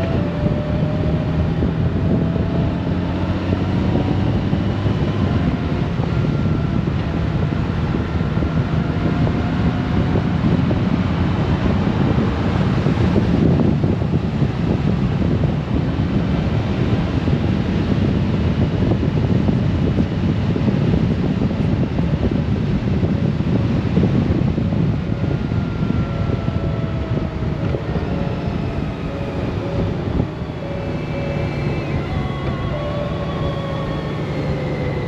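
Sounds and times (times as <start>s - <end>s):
motorcycle engine running: 0.0s - 35.0s
wind rushing over microphone: 0.0s - 35.0s
steady tones falling in pitch: 24.8s - 35.0s.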